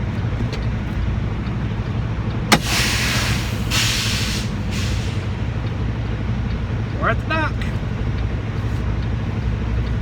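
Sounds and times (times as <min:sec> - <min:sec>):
diesel truck engine idling: 0:00.0 - 0:10.0
air brake pop and hiss: 0:02.5 - 0:05.3.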